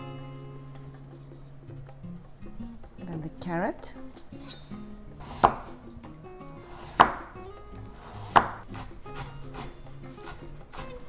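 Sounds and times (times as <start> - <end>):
soft background music: 0.0 - 11.0
knife chopping on cutting board: 5.2 - 5.8, 6.6 - 7.4, 8.0 - 11.0.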